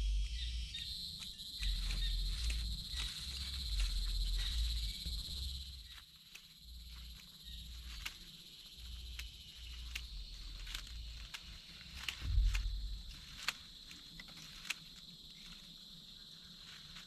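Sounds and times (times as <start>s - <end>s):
low rumble: 0.0s - 0.8s, 9.6s - 13.4s
insects chirring: 0.0s - 17.0s.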